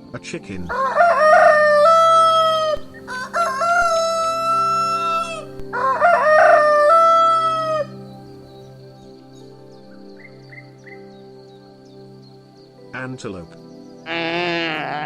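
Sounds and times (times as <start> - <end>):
rooster crowing: 0.7 - 7.9.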